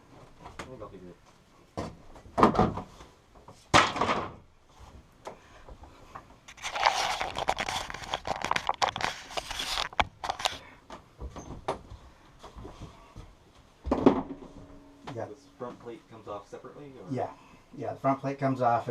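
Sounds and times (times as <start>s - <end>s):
rustling and scraping handling noise: 5.9s - 14.8s.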